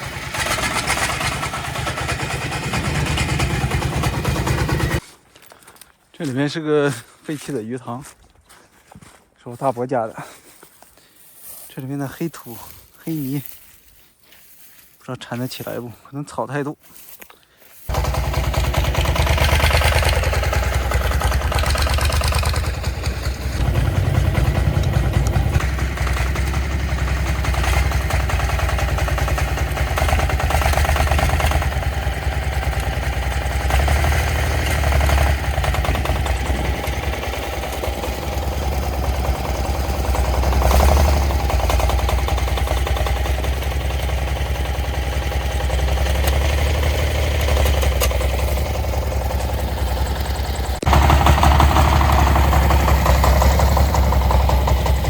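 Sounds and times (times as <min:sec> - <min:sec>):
tractor diesel engine running: 0:00.0 - 0:05.0, 0:17.8 - 0:55.0.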